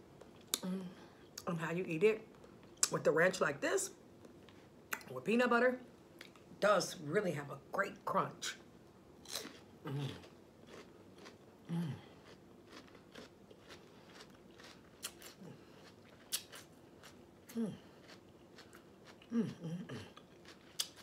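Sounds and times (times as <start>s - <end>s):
person humming mmm: 0.5s - 1.1s, 9.8s - 10.3s, 11.7s - 12.1s, 17.5s - 17.9s, 19.2s - 20.2s
crunchy chewing of celery: 9.2s - 21.0s.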